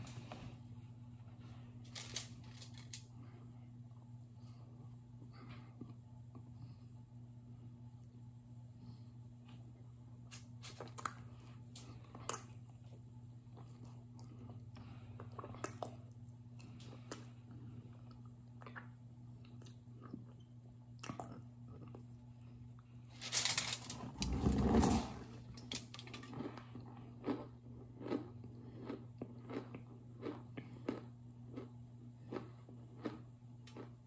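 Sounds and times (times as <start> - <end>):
crunchy chewing: 10.3 - 22.9, 25.6 - 34.0.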